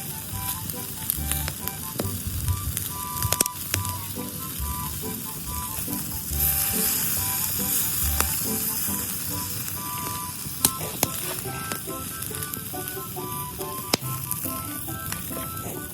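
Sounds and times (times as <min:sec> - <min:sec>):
background music: 0:00.0 - 0:15.9
meat sizzling on a grill: 0:03.0 - 0:15.6.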